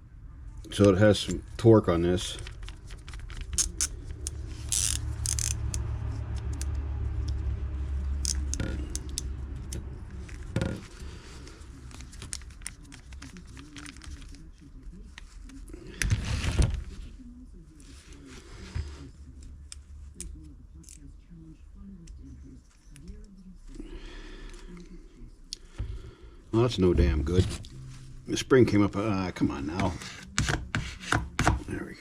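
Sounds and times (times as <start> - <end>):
low steady hum: 0.0 - 32.0
small metal parts clicking: 2.4 - 6.7, 8.2 - 9.8.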